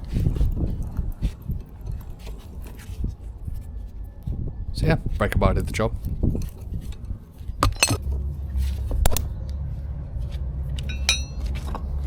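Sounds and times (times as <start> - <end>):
steady low rumble: 0.0 - 12.0
ringing metallic clink: 7.6 - 8.0, 10.8 - 11.4
metal tools clinking: 7.6 - 8.1, 10.8 - 11.8.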